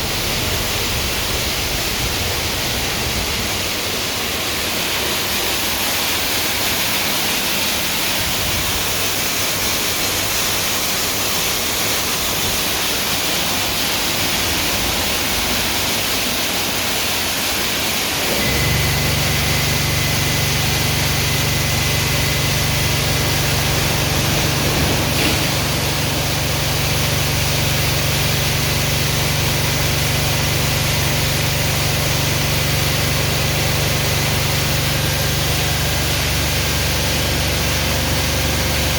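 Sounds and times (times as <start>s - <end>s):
low machine hum: 18.3s - 32.0s
water spraying hiss: 20.7s - 30.7s.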